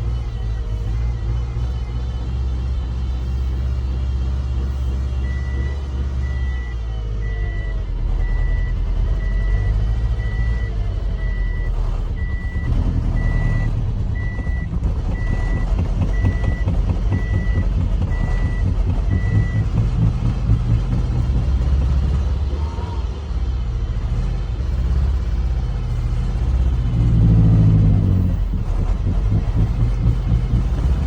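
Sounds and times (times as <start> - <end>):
car engine rumbling: 0.0 - 31.0
electronic warning beep: 5.2 - 20.6.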